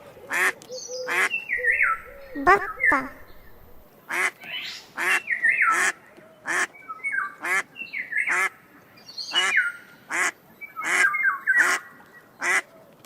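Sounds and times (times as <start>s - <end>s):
ducks quacking: 1.6s - 4.3s.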